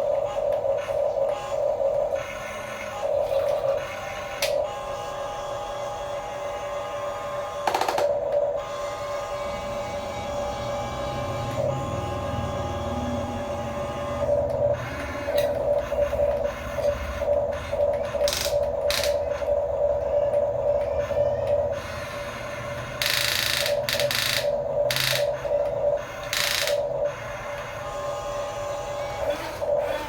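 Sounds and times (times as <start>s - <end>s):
small electric motors whirring: 8.6s - 30.0s.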